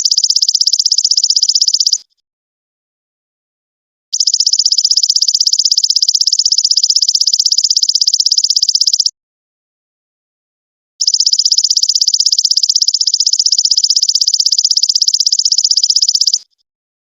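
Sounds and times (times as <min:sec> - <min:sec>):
insect high-pitched pulsing trill: 0:00.0 - 0:02.0, 0:04.2 - 0:09.1, 0:11.0 - 0:16.5.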